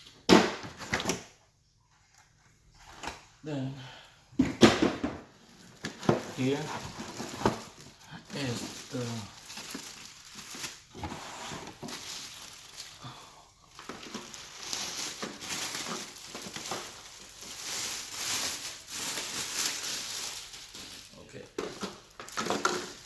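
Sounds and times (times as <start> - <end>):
packaging rustling and crinkling: 5.2 - 23.0.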